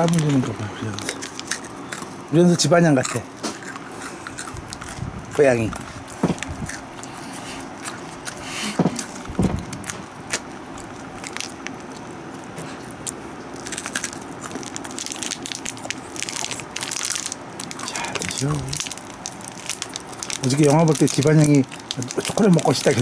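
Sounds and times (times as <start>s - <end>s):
foil wrapper crinkling: 0.0s - 2.2s, 4.6s - 23.0s
crunchy chewing: 0.0s - 23.0s.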